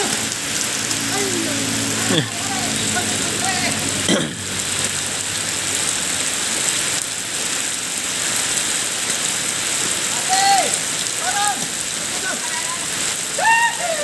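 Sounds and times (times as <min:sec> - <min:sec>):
steady rain falling: 0:00.0 - 0:14.0
person calling out: 0:01.1 - 0:04.1, 0:10.2 - 0:14.0.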